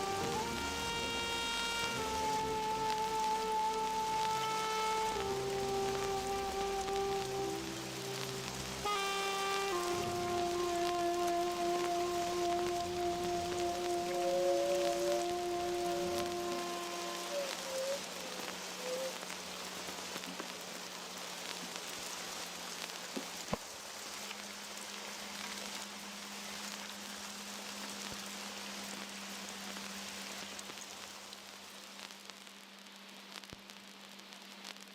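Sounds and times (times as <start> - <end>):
low steady hum: 0.0 - 17.3
rain-like hiss: 0.0 - 34.9
tiny ticks: 1.8 - 20.6, 30.4 - 34.9.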